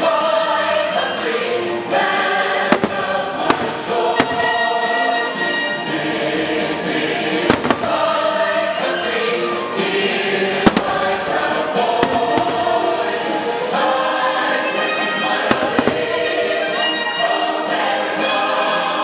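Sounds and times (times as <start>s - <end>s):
choir singing over music: 0.0s - 19.0s
firework bangs: 2.5s - 5.5s, 7.2s - 8.8s, 10.4s - 13.7s, 15.3s - 17.1s.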